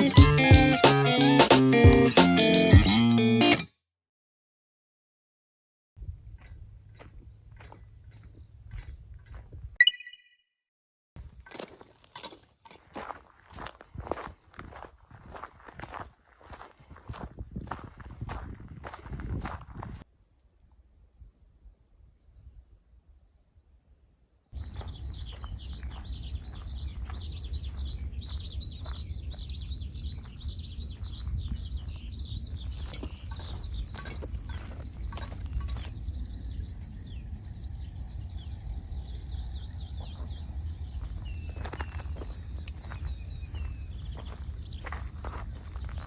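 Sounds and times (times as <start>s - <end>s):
birds chirping and singing: 6.9s - 9.7s, 24.6s - 46.0s
steady low rumble: 33.5s - 46.0s.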